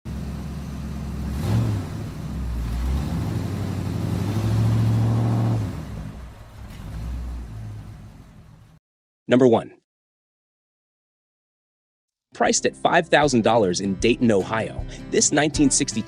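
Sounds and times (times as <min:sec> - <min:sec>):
car engine revving: 0:00.1 - 0:08.8.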